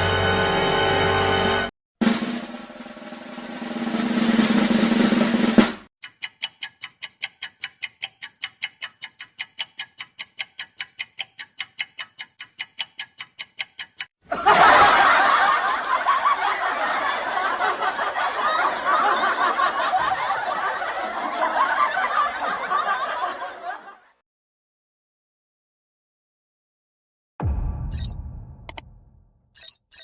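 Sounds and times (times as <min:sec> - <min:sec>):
rising drum roll: 0:02.0 - 0:05.9, 0:27.4 - 0:29.5
clock ticking: 0:06.0 - 0:14.1, 0:27.9 - 0:28.9, 0:29.6 - 0:30.0
crowd laughing: 0:14.2 - 0:24.2
low hum: 0:27.4 - 0:29.6.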